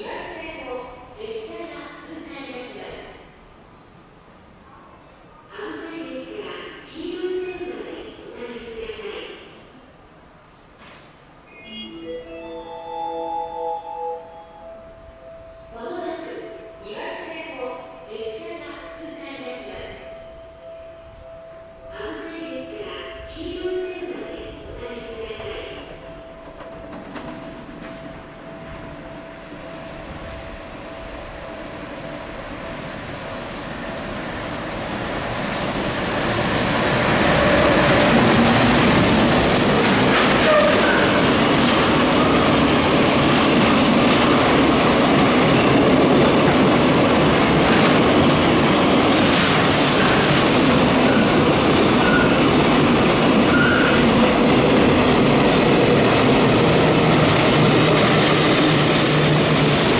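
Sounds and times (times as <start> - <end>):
freight train rumble: 14.3 - 59.9
wheel squeals: 53.5 - 54.1.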